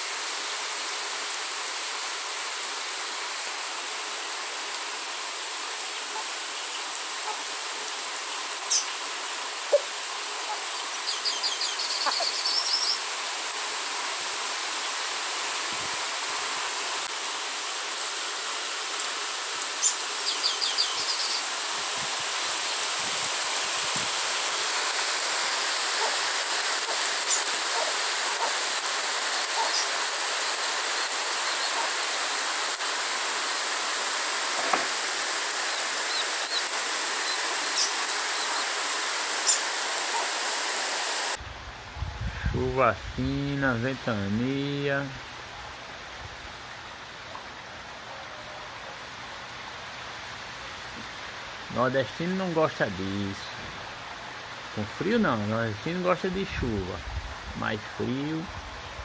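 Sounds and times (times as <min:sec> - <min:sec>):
steady rain hiss: 0:00.0 - 0:59.0
bird trilling call: 0:11.1 - 0:13.0.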